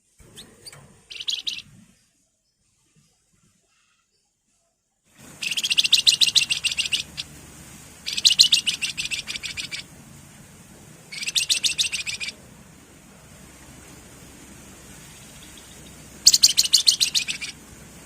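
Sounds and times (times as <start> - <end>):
bird singing fast high notes: 0.4 - 1.7, 5.4 - 7.4, 8.0 - 9.9, 11.1 - 12.4, 15.1 - 17.6.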